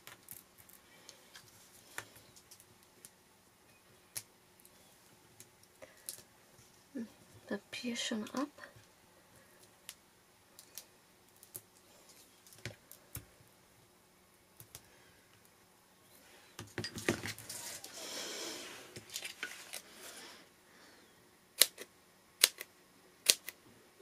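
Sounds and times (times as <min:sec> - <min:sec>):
paper rustling: 0:17.1 - 0:18.0, 0:19.0 - 0:20.2.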